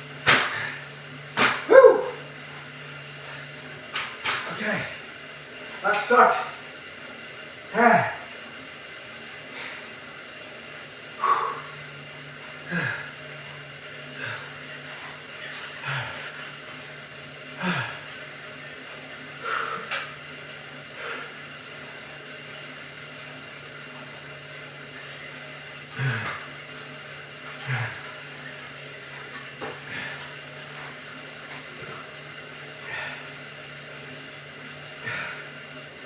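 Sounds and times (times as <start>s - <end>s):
exercise bike hum: 0.0s - 36.0s
person exhaling: 12.7s - 13.2s, 17.6s - 18.1s.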